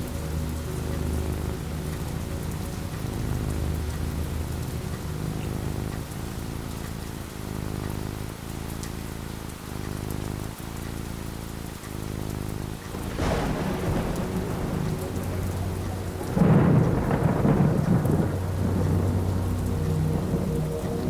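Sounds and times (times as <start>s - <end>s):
thunder rumbling: 0.0s - 7.3s, 12.6s - 21.0s
rain falling: 0.0s - 21.0s.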